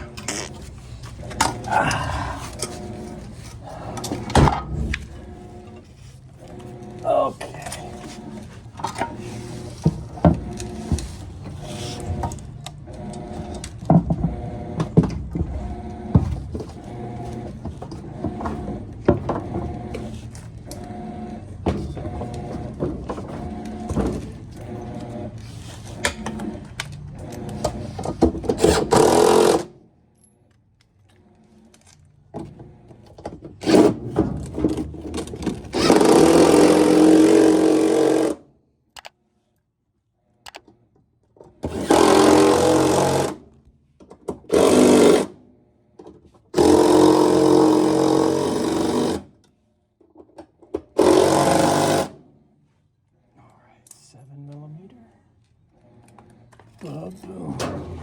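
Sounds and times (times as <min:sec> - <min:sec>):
power driver whirring: 0:00.0 - 0:29.7, 0:31.0 - 0:38.4, 0:41.6 - 0:43.4, 0:46.6 - 0:49.3, 0:51.0 - 0:52.2.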